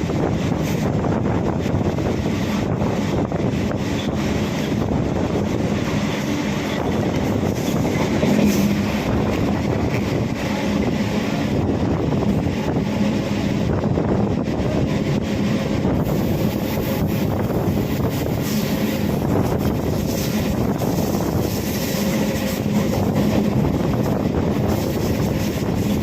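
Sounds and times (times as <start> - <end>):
train wheels rumbling on rail: 0.0 - 26.0
wind on microphone: 0.0 - 26.0.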